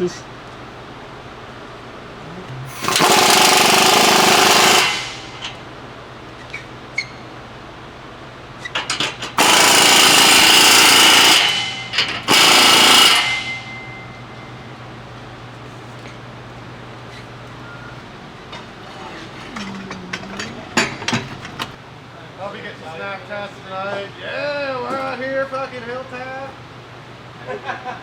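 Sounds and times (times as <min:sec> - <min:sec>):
impact wrench hammering: 0:02.7 - 0:05.6, 0:08.7 - 0:14.7, 0:19.5 - 0:21.8.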